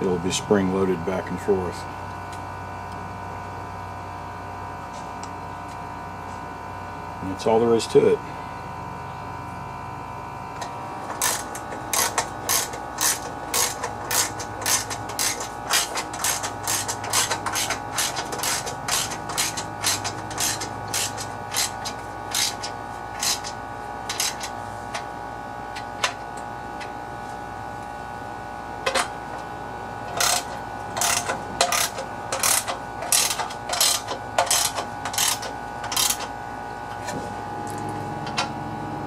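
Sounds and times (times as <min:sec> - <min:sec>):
ratchet wrench clicking: 0:11.1 - 0:23.5, 0:24.1 - 0:24.5, 0:30.1 - 0:36.3.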